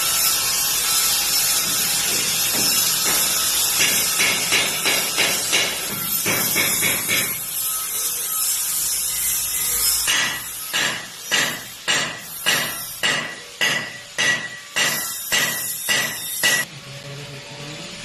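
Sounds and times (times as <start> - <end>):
welding arc hissing: 0.0 - 16.7
hammer striking steel: 1.5 - 7.5, 9.9 - 16.7.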